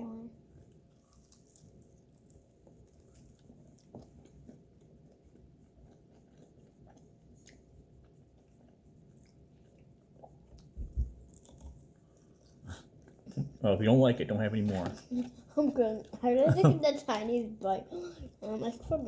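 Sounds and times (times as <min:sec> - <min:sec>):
chewing chicken wings: 0:00.7 - 0:13.6.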